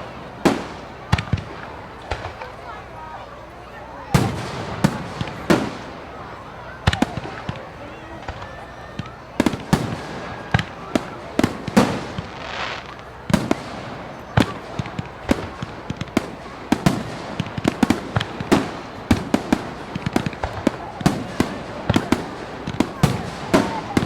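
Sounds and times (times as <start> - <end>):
fireworks bangs and crackles: 0.0 - 24.0
fireworks hissing burst: 9.4 - 24.0.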